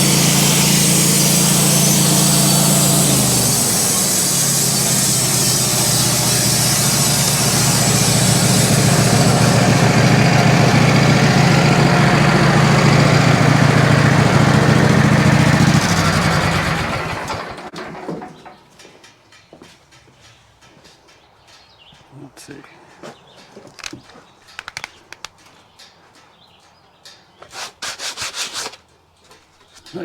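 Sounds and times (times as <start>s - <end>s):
band sawmill running: 0.0s - 18.3s.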